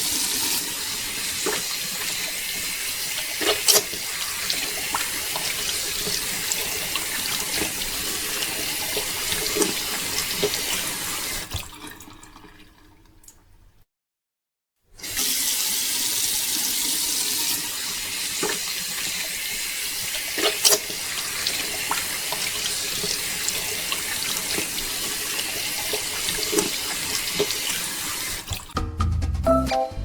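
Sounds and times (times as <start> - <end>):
water pouring and splashing: 0.0 - 13.5, 15.0 - 28.8
music: 28.8 - 30.0.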